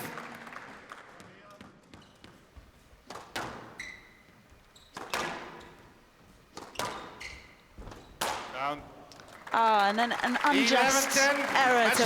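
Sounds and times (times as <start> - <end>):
shoes squeaking on court floor: 1.8 - 9.3
squash ball hitting rackets and walls: 1.9 - 9.1.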